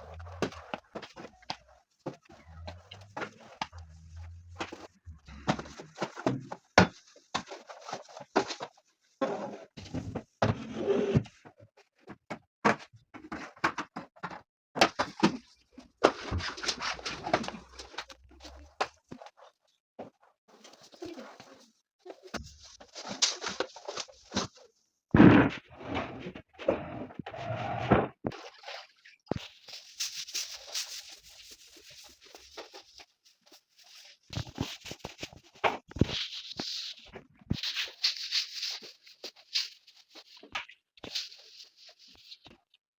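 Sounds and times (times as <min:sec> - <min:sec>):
household objects rustling and clicking: 0:00.0 - 0:28.4, 0:29.3 - 0:42.6
rustling: 0:29.4 - 0:40.4.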